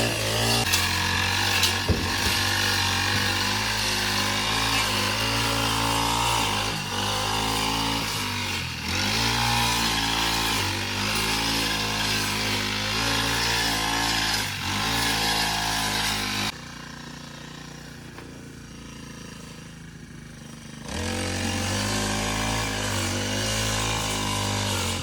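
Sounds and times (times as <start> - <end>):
small engine running: 0.0 - 25.0
sharp knocks: 1.6 - 3.3.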